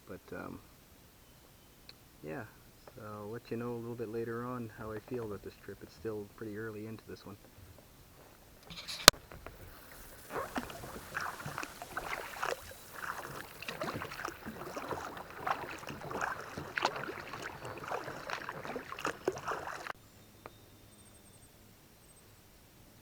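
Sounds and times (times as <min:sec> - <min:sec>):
paddle splashing in water: 0:08.7 - 0:20.0.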